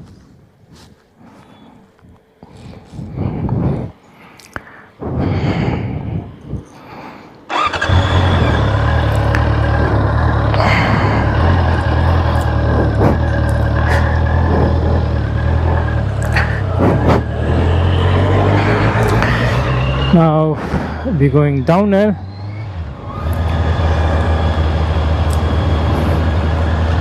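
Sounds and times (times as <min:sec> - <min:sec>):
motorcycle engine starting and running: 0:07.5 - 0:20.2, 0:20.9 - 0:27.0.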